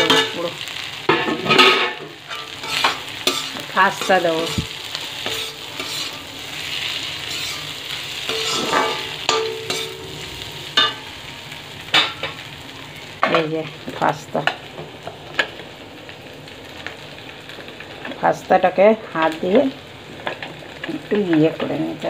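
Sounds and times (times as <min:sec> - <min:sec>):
food sizzling in a pan: 0:00.0 - 0:22.0
steel spoon scraping and clinking pan: 0:01.4 - 0:06.3, 0:07.2 - 0:11.0.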